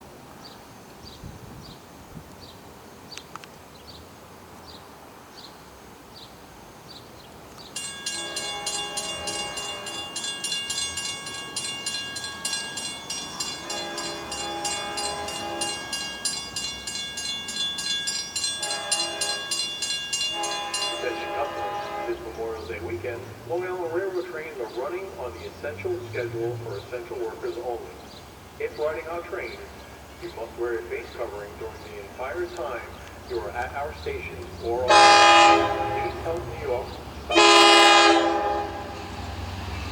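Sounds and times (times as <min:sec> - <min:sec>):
crossing bells ringing: 0:07.7 - 0:39.9
locomotive horn: 0:08.0 - 0:17.0, 0:18.4 - 0:24.4, 0:34.6 - 0:39.5.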